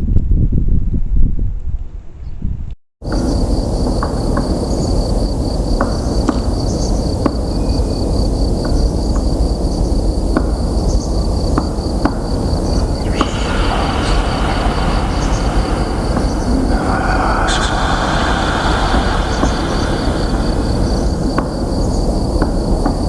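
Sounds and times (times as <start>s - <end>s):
train rumbling past: 10.0s - 23.0s
high pulsing whine: 12.2s - 23.0s.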